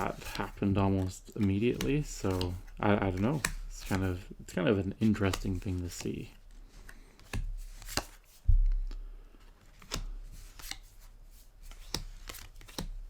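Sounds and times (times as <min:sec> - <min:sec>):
cards snapping: 0:05.0 - 0:09.0, 0:09.7 - 0:11.0, 0:11.6 - 0:13.0.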